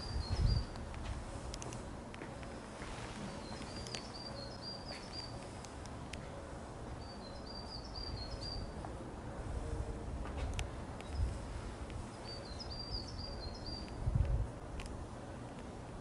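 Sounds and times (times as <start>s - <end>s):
steady outdoor hiss: 0.0s - 16.0s
small bird chirping: 7.0s - 8.8s.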